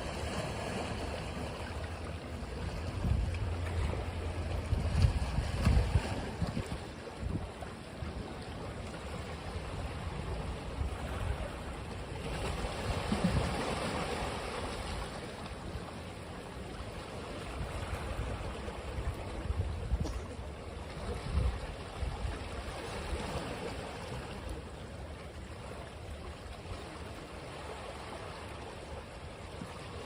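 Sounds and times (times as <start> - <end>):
ocean waves washing onto beach: 0.0 - 30.0
wind rumbling on microphone: 2.5 - 8.4, 17.5 - 20.4, 21.0 - 23.2.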